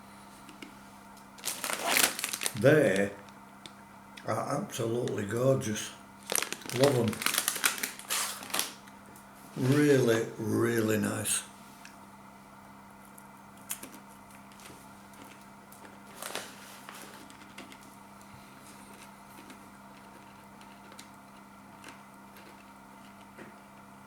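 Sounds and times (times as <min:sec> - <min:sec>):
low electrical hum: 0:00.0 - 0:24.0
chewing crunchy chips: 0:06.2 - 0:08.8, 0:13.2 - 0:23.8.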